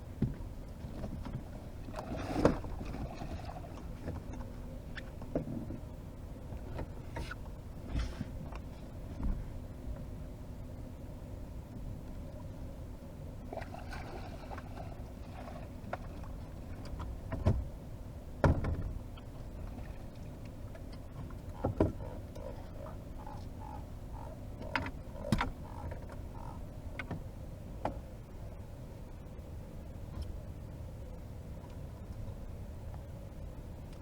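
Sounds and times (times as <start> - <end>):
water: 0.0 - 34.0
wind: 0.0 - 34.0
knocks and thumps in boat: 0.1 - 10.2, 13.6 - 28.1.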